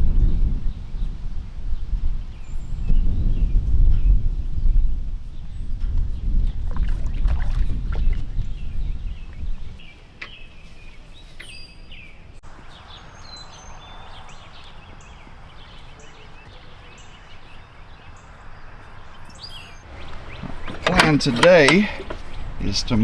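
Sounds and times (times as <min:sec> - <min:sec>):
outdoor background noise: 0:00.0 - 0:23.0
birds chirping: 0:05.2 - 0:23.0.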